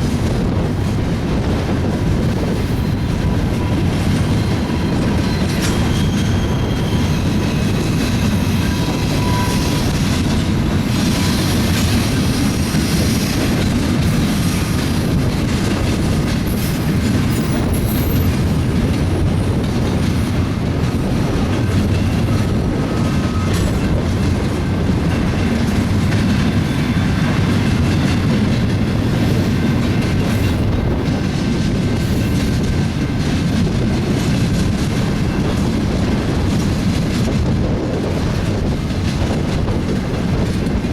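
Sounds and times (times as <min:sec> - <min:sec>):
freight train rumbling on rails: 0:00.0 - 0:40.9
wheel squeals: 0:02.7 - 0:10.2.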